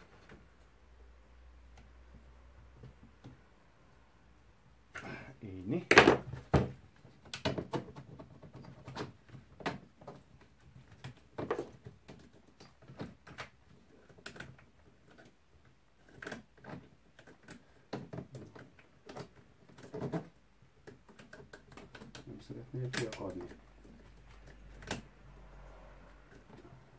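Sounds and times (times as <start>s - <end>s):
hand tools clicking and knocking: 5.8s - 25.2s.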